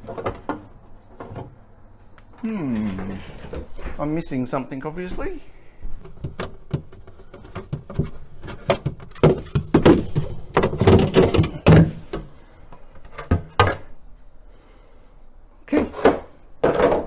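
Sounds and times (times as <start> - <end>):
plastic panel knocking and rattling: 6.0 - 12.3, 16.0 - 17.0.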